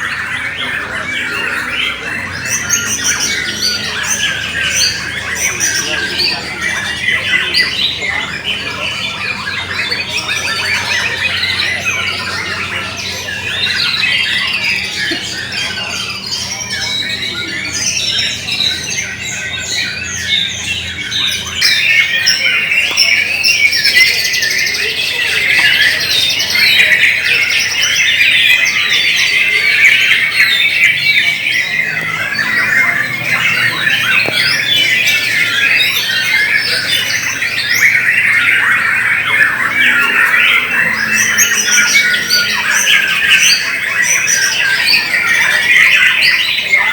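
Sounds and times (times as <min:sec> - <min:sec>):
chorus of songbirds whistling: 0:00.0 - 0:46.9.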